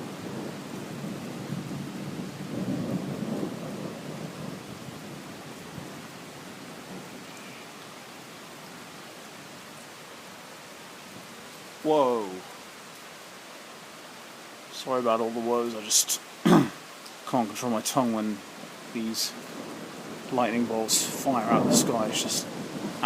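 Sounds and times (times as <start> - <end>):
thunder rumbling: 0.0 - 7.3, 19.1 - 23.0
heavy rain hissing: 0.0 - 23.0.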